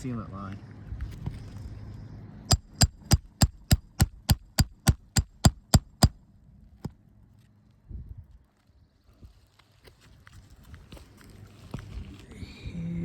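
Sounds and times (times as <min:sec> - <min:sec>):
hammer tapping: 0:02.5 - 0:06.2.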